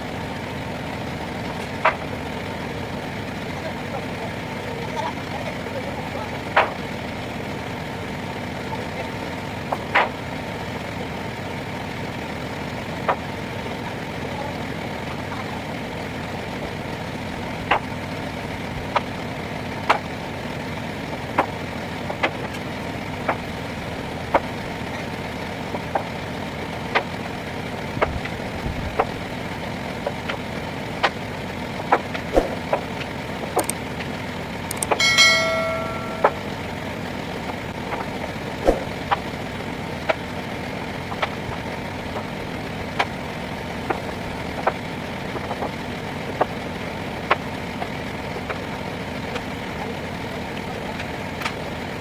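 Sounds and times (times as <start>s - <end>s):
lorry engine idling: 0.0s - 52.0s
ringing metal clank: 34.7s - 36.7s.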